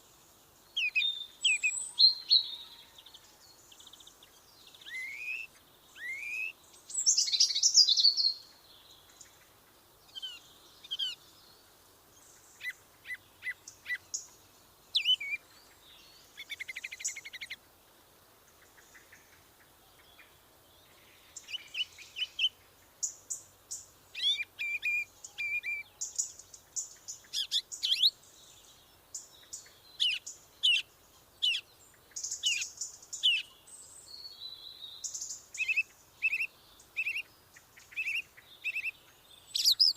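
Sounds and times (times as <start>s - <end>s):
songbirds chirping and singing: 0.0s - 17.6s, 18.5s - 39.9s.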